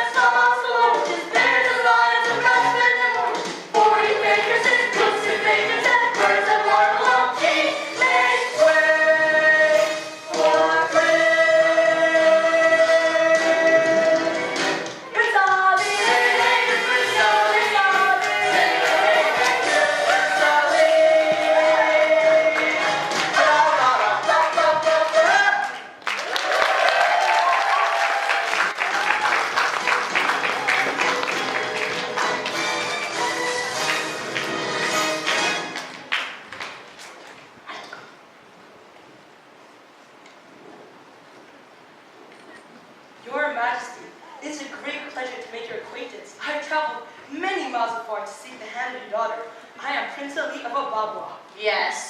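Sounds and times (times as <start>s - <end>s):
musical accompaniment: 0.0s - 25.4s, 29.2s - 36.1s
students singing in chorus: 3.8s - 14.1s, 15.8s - 24.8s
audience applauding: 17.5s - 37.0s.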